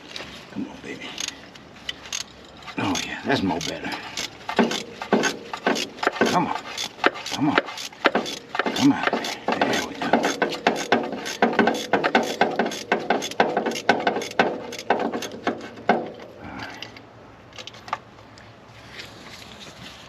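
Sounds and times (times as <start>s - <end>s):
ratchet clicking: 1.2s - 15.7s.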